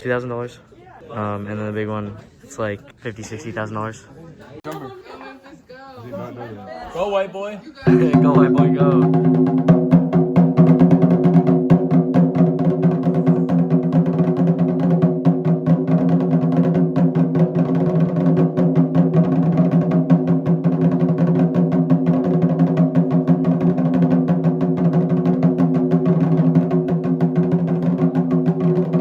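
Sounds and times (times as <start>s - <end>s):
taiko drums: 7.9s - 29.0s.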